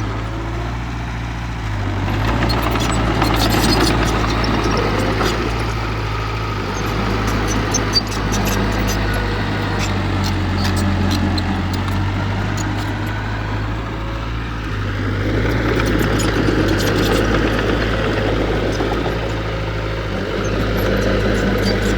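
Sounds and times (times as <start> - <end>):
diesel engine droning: 0.0 - 21.9
light clicks and clanks: 2.2 - 5.9, 15.4 - 19.5.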